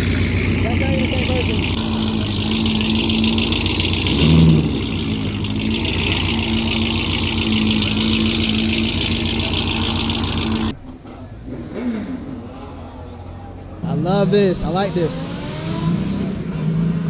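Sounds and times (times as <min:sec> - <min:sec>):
car engine running loudly: 0:00.0 - 0:10.7
engine revving: 0:00.0 - 0:10.8.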